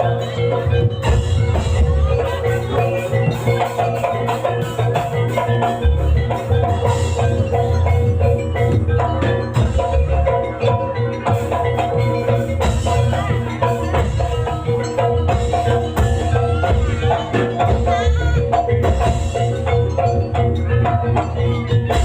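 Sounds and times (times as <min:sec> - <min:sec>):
drums: 0:00.0 - 0:22.0
struck metallophones ringing: 0:00.0 - 0:22.0
wavering melody line: 0:00.0 - 0:22.0.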